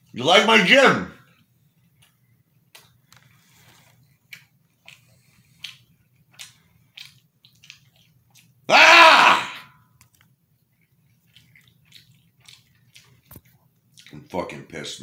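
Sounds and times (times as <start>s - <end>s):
loud voiced sound from man: 0.2s - 1.2s, 8.7s - 9.6s
man chewing food: 1.2s - 9.1s, 9.8s - 14.7s
wet mouth clicks and smacks: 4.3s - 8.6s, 10.0s - 14.2s.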